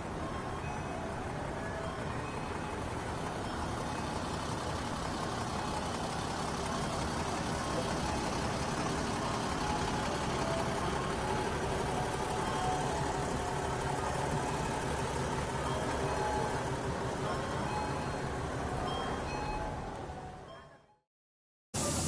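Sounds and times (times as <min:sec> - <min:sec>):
extractor hood drone: 0:00.0 - 0:20.2
food sizzling on hot griddle: 0:21.8 - 0:22.0.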